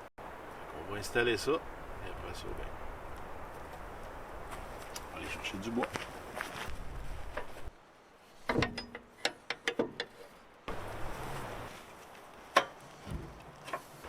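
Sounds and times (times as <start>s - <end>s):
mechanical clicks and knocks: 8.5s - 10.2s.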